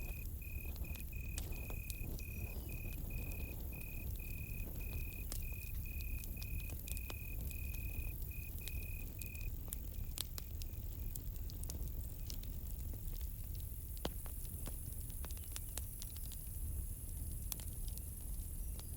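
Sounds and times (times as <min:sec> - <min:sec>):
cricket chirping: 0:00.0 - 0:11.1
campfire crackling and popping: 0:00.0 - 0:18.9.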